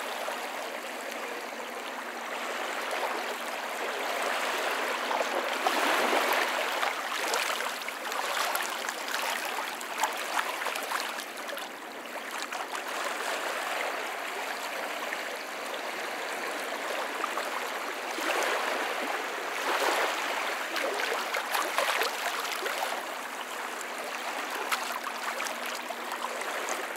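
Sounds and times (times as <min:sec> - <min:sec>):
small waves splashing on stones: 0:05.6 - 0:11.7, 0:19.6 - 0:23.3, 0:23.9 - 0:26.9.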